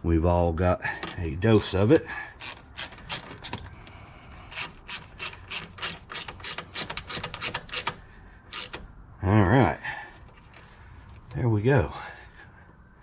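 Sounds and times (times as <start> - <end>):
socket ratchet clicking: 2.4 - 3.6, 4.5 - 8.9.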